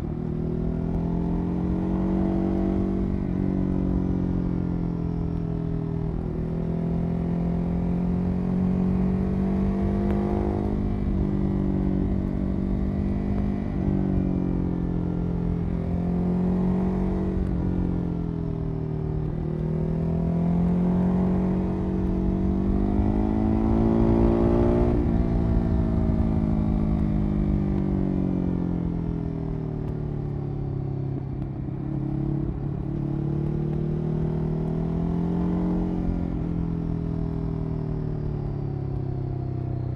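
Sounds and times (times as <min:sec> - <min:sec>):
motorcycle engine revving: 0:06.1 - 0:14.2, 0:19.2 - 0:29.0, 0:31.6 - 0:37.7.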